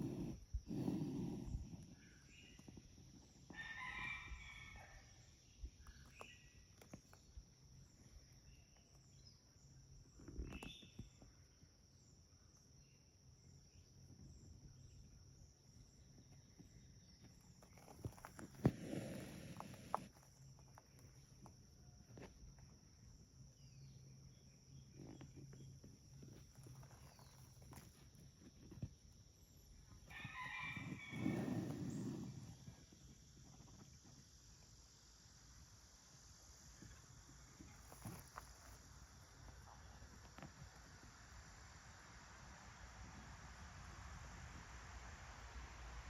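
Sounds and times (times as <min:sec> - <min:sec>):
animal call: 0:30.1 - 0:32.6.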